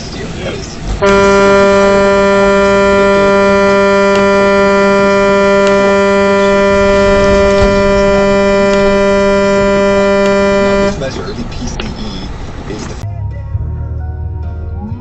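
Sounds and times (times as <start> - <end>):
vehicle horn blast: 1.0 - 11.4.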